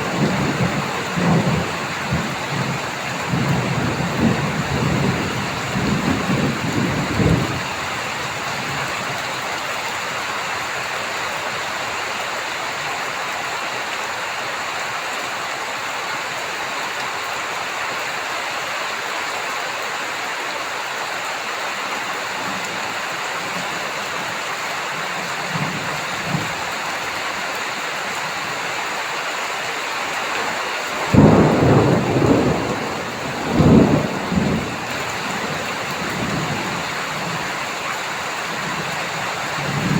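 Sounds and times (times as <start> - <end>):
thunder rumbling: 0.0 - 8.8, 30.5 - 37.8
heavy rain falling: 0.0 - 39.9.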